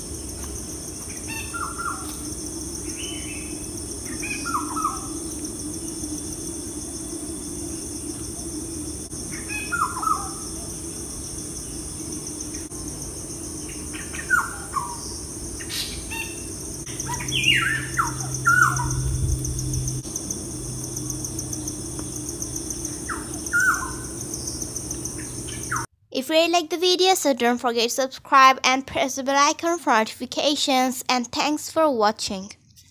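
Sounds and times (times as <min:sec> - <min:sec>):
steady high drone: 0:00.0 - 0:25.9
birds chirping: 0:01.1 - 0:06.2, 0:13.7 - 0:20.0, 0:20.7 - 0:25.9.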